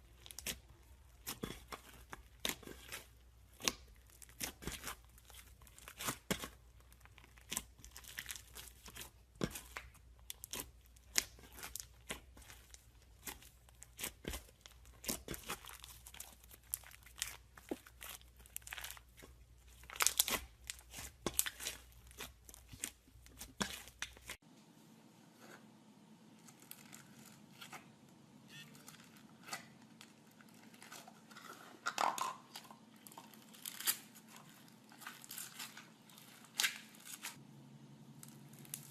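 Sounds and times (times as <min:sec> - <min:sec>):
slime crackling and popping: 0:00.1 - 0:24.4, 0:38.2 - 0:38.9.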